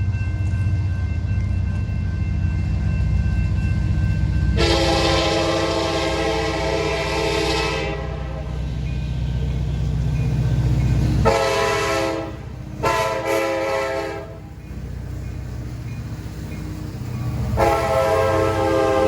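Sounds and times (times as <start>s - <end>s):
train passing with low rumble: 0.0s - 19.0s
locomotive horn blasts: 4.6s - 8.6s, 11.2s - 14.4s, 17.6s - 19.0s.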